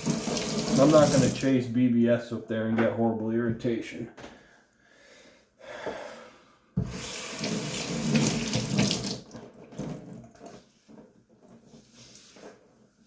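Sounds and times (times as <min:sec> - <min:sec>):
tap water splashing into sink: 0:06.8 - 0:10.6.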